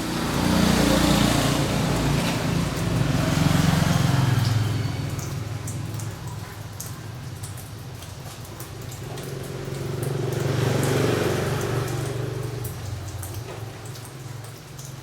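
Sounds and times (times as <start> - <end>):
motor vehicle passing: 0.0 - 6.9, 8.8 - 13.4.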